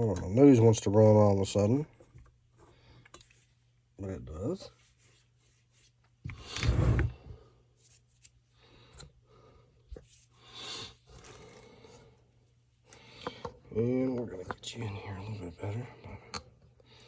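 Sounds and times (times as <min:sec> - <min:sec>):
sniff: 0:10.4 - 0:11.1.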